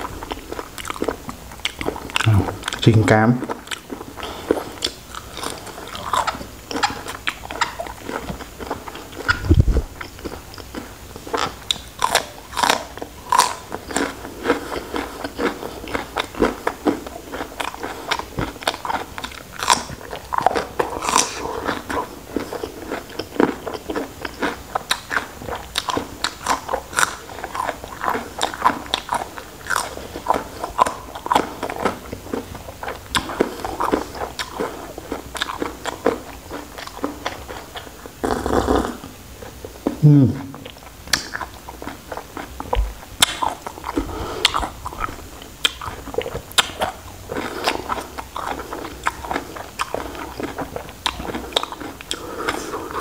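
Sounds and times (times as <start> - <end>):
crunchy bites and chewing: 0.0 - 38.9, 40.6 - 53.0.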